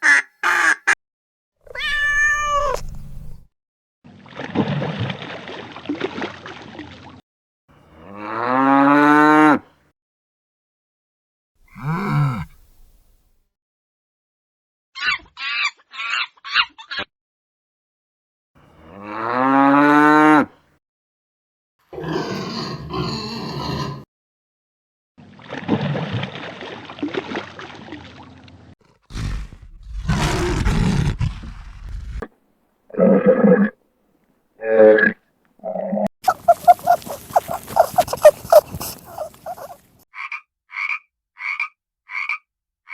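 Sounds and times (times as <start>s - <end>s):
rough animal calls: 28.9s - 32.3s, 34.6s - 40.0s
short animal calls: 36.2s - 39.9s.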